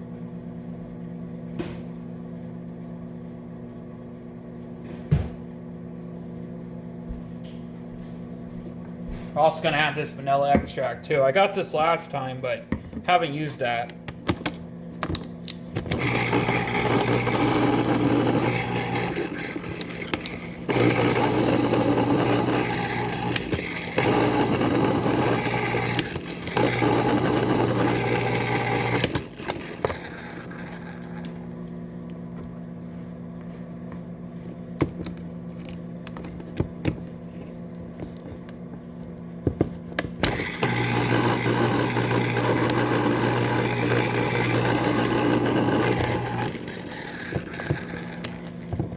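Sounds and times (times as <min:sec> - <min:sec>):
small electric motor running: 0:15.9 - 0:31.3, 0:40.3 - 0:48.5.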